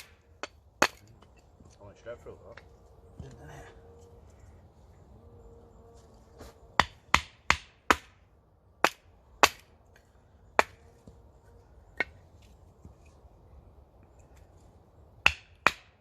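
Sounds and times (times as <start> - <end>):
axe chopping wood: 0.0 - 1.3, 6.8 - 8.2, 8.8 - 9.7, 10.6 - 10.8, 15.2 - 16.0.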